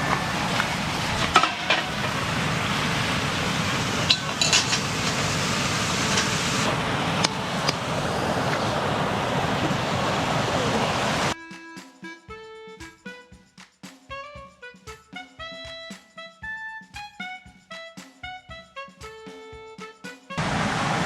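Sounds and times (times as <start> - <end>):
metal pots and utensils clinking: 0.0 - 7.8
steady rushing noise: 0.0 - 11.4, 20.4 - 21.0.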